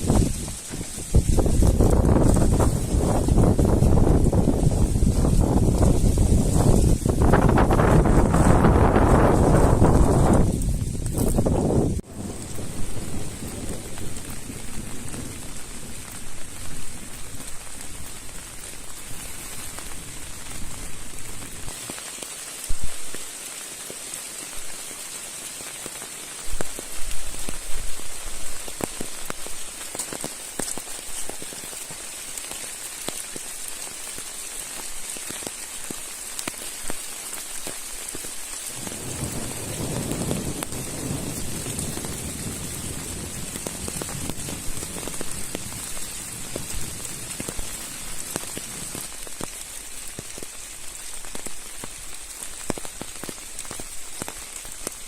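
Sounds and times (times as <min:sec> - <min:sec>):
rain falling: 0:00.0 - 0:55.0
sharp raindrop hits: 0:00.0 - 0:55.0.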